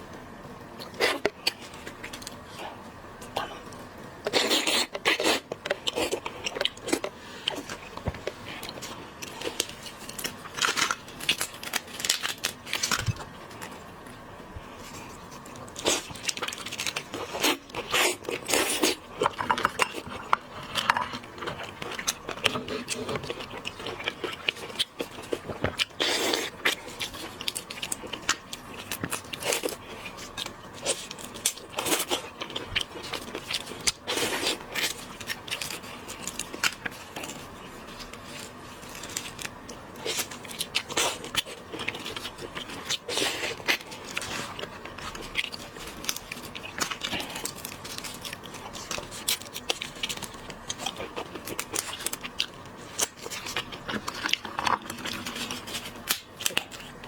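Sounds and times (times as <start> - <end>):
crunching and chewing seafood: 0.6 - 57.0.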